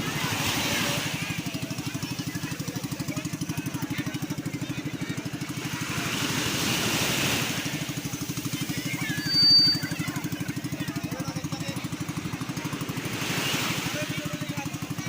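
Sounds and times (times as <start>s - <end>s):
small engine idling: 0.0s - 15.0s
high steady whistle tone: 9.0s - 10.4s.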